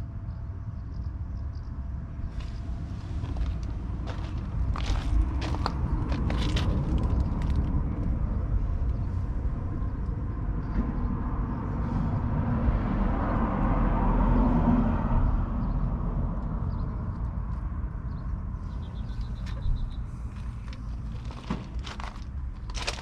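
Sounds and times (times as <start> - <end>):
tractor diesel engine rumbling: 18.6 - 23.0.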